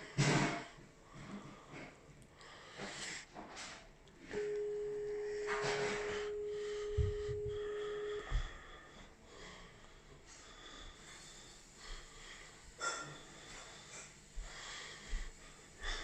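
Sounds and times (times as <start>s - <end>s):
steady electronic tone: 4.3s - 8.6s
soft low knocks: 5.5s - 8.6s
faint hiss: 10.0s - 16.0s.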